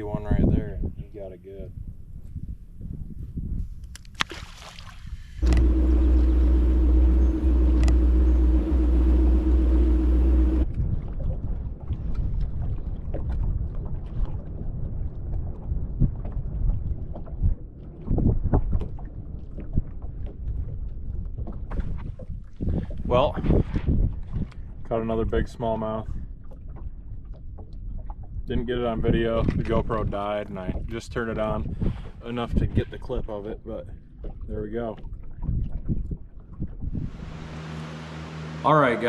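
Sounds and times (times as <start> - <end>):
wind noise: 0.0 - 4.3, 4.9 - 25.5, 26.1 - 33.3, 35.1 - 37.5
water noise: 3.9 - 25.6, 26.3 - 39.0
boat motor running: 5.4 - 10.8, 37.0 - 39.0.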